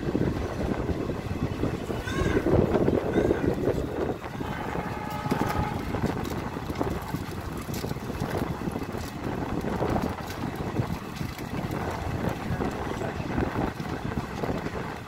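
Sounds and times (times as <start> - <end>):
train wheels rumbling on rails: 0.0 - 15.0
wind buffeting microphone: 0.0 - 15.0
wheel clicks: 5.1 - 13.0.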